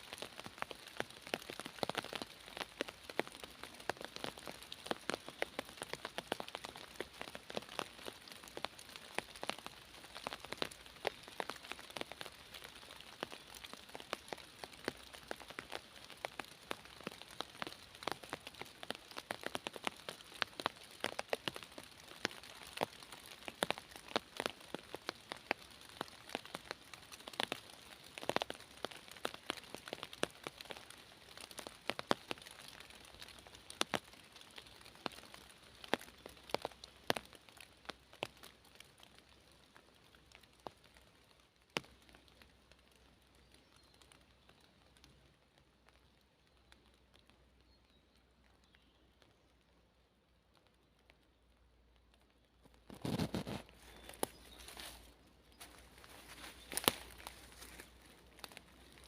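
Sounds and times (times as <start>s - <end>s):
rain falling in a forest: 0.0s - 59.0s
raindrops striking close by: 0.0s - 59.0s.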